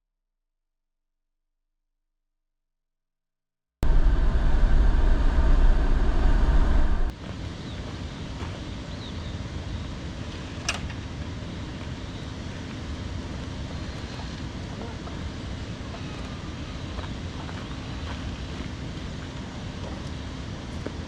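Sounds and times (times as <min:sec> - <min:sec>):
car engine and road noise: 0:03.8 - 0:14.6.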